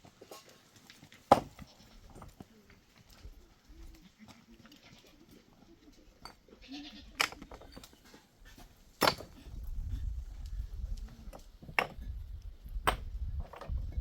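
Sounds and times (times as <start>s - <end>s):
livestock bleating: 6.5s - 7.2s.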